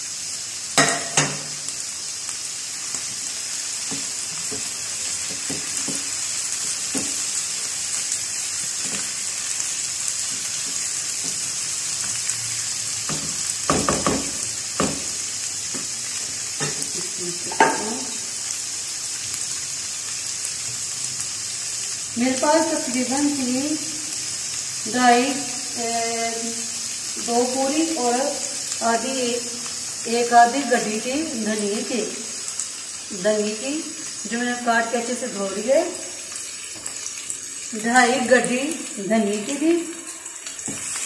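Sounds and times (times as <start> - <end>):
food sizzling in a frying pan: 0.0 - 41.0
spatula knocking against a pan: 13.1 - 15.1.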